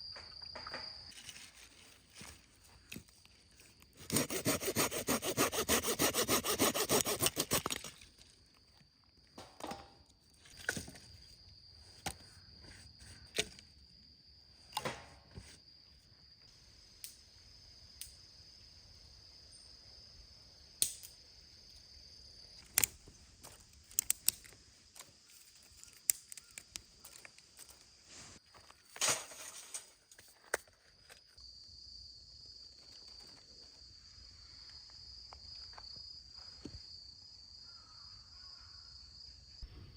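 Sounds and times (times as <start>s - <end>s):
hand saw cutting firewood: 4.0s - 7.9s.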